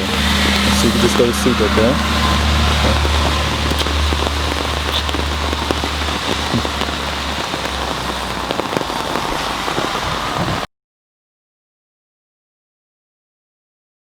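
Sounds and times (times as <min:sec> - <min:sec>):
low engine hum: 0:00.0 - 0:10.7
raindrops pattering: 0:00.0 - 0:10.7
steady rain: 0:00.0 - 0:10.7.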